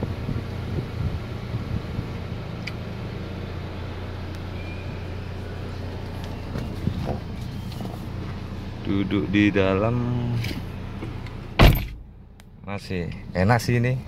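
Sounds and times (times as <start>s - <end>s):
air conditioning running: 0.0s - 14.0s
car engine idling: 0.0s - 14.0s.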